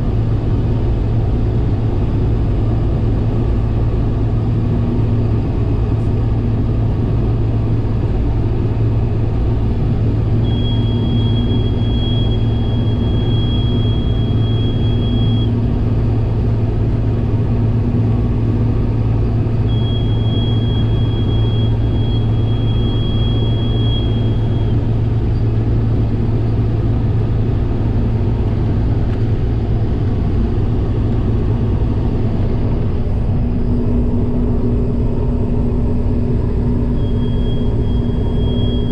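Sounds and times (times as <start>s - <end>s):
combine harvester cab hum: 0.0s - 38.9s
high warning alarm tone: 10.4s - 15.6s, 19.7s - 24.8s, 36.9s - 38.9s.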